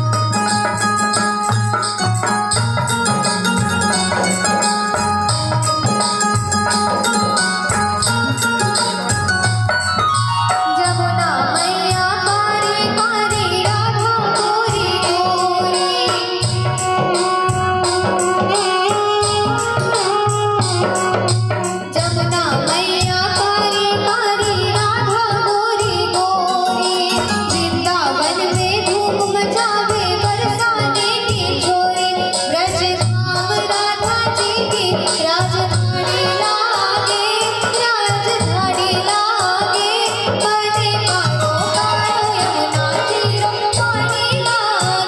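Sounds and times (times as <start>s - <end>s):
ornamented folk melody: 0.0s - 13.3s
fast percussion beat with jingles: 0.0s - 45.0s.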